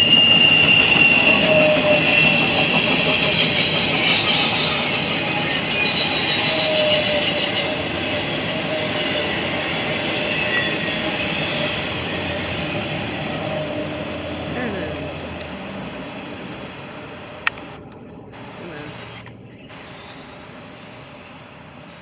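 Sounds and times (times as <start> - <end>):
high wheel squeal: 0.0 - 14.5, 18.8 - 22.0
steel wheels rumbling on rail: 0.0 - 22.0.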